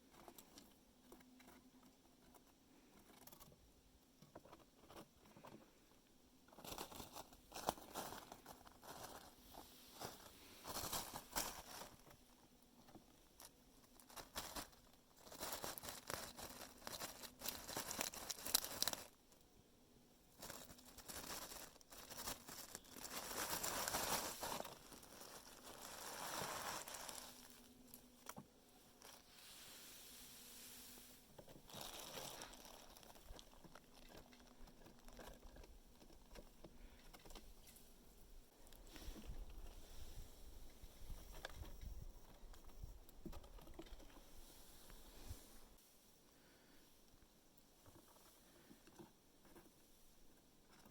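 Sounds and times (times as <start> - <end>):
squirrel cracking nut shells: 16.3 - 19.2.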